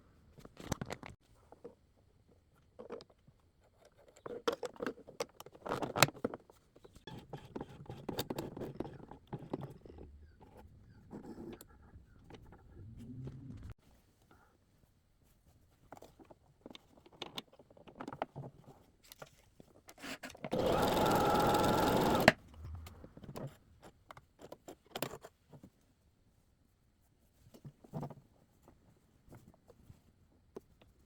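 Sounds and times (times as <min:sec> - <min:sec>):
sewing machine stitching: 0:20.5 - 0:23.2.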